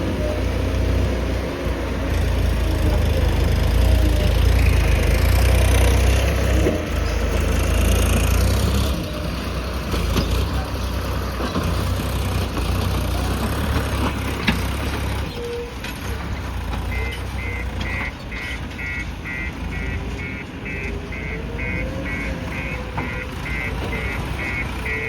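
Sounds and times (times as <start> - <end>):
diesel engine running: 0.0 - 25.0
reversing alarm beeping: 16.9 - 25.0.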